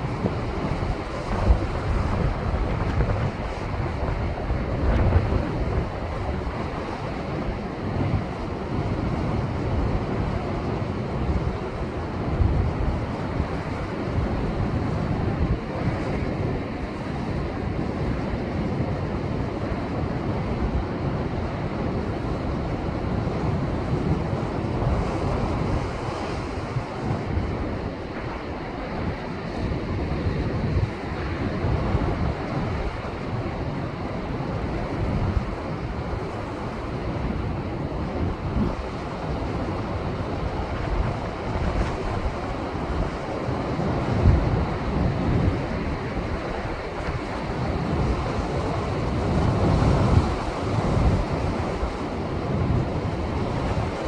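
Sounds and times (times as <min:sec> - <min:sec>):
surf washing against rocks: 0:00.0 - 0:08.7
wind buffeting microphone: 0:00.0 - 0:54.0.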